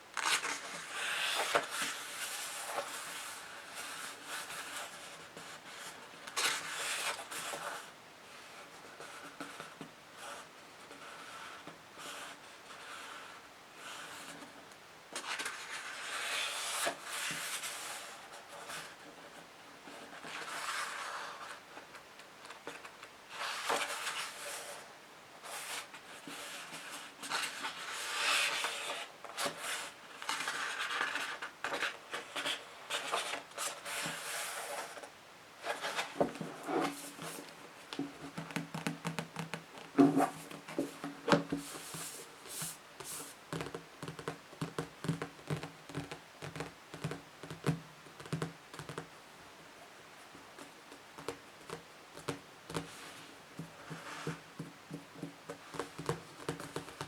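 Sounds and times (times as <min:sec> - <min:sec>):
scratching and rubbing on books: 0:00.2 - 0:14.6, 0:15.2 - 0:21.6, 0:22.7 - 0:49.1, 0:51.2 - 0:57.0
quick tapping on books: 0:37.9 - 0:49.1, 0:53.6 - 0:57.0.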